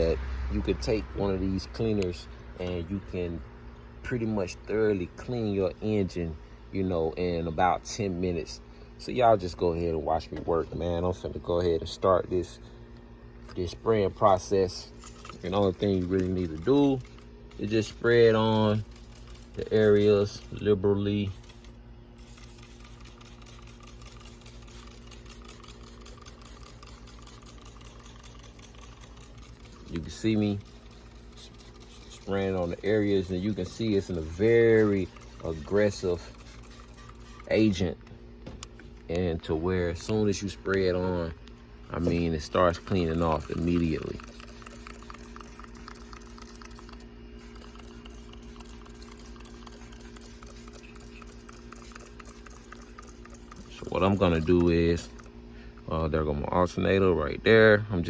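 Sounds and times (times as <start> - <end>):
low steady hum: 0.0 - 58.0
trigger spray bottle spritzing: 14.9 - 20.7, 21.3 - 37.9, 42.0 - 55.3.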